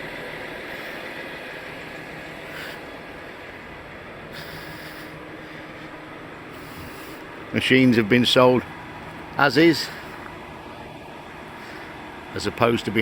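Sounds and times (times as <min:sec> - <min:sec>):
lorry engine idling: 0:00.0 - 0:13.0.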